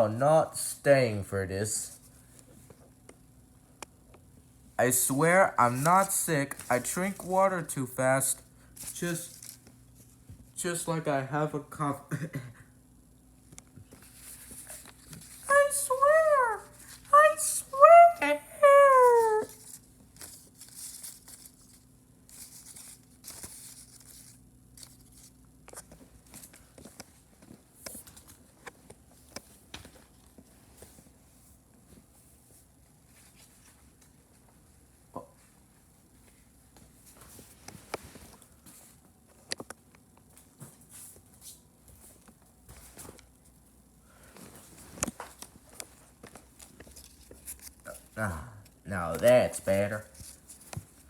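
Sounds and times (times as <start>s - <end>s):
quiet footsteps and shuffling: 25.5s - 47.9s.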